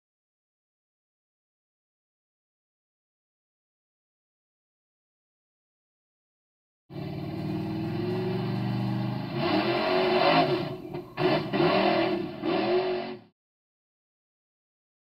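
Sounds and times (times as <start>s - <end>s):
vehicle engine revving: 6.9s - 13.3s.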